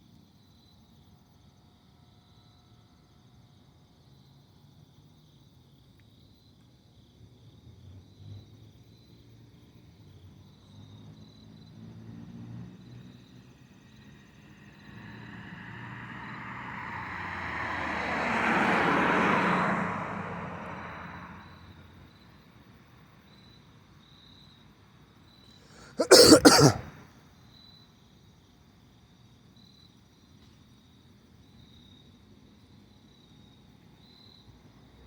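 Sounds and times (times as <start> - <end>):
person coughing: 25.7 - 26.9.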